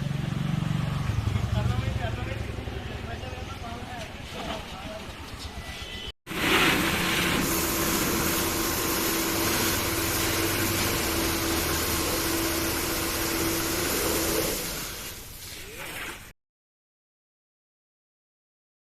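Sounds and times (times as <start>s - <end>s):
machine hissing and humming: 6.3s - 15.4s.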